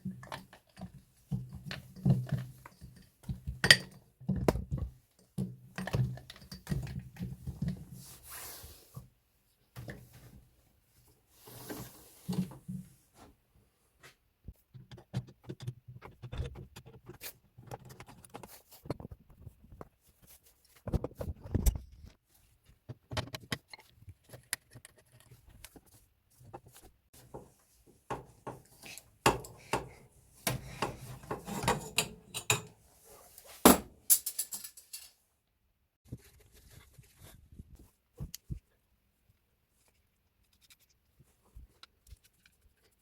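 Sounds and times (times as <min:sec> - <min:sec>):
tools and metal parts clinking: 0:28.1 - 0:32.8, 0:33.5 - 0:35.2.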